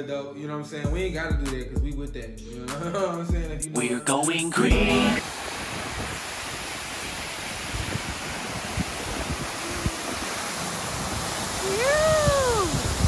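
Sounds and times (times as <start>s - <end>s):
waterfall rushing: 4.9s - 13.0s
person calling out: 11.6s - 12.8s.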